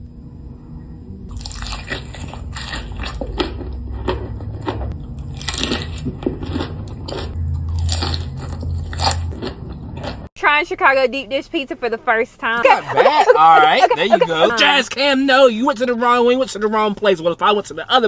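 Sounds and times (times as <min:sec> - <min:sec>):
steady low hum: 0:00.0 - 0:18.0
person chewing crunchy food: 0:01.3 - 0:10.3.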